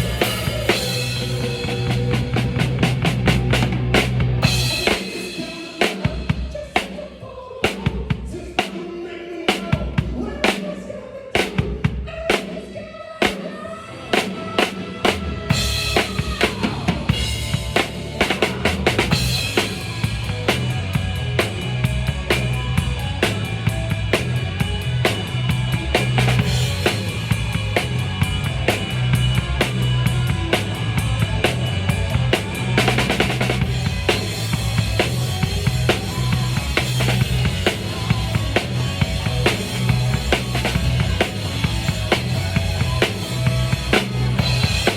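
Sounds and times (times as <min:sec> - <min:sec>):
low bass line: 0:00.0 - 0:04.8, 0:15.5 - 0:44.9
live band music: 0:00.0 - 0:06.4, 0:13.9 - 0:44.9
drum kit beat: 0:00.0 - 0:08.8, 0:14.2 - 0:44.9.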